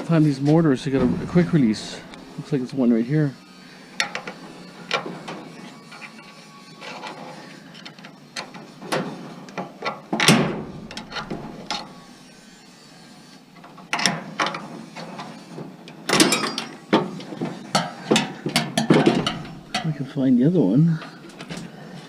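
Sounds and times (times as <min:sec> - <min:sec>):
metal clanks and scraping: 0:00.4 - 0:02.7, 0:10.2 - 0:12.5, 0:17.8 - 0:20.0.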